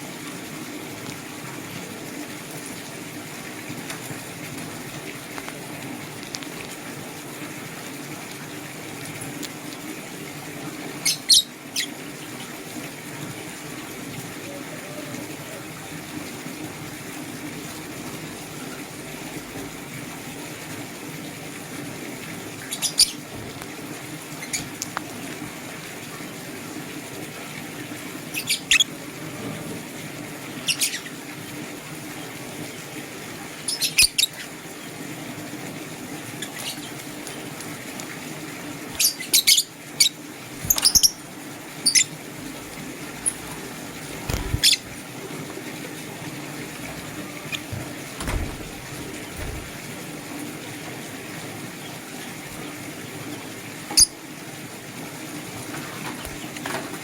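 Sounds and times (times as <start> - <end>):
lovebirds chirping: 39.0 - 41.2, 43.1 - 45.0.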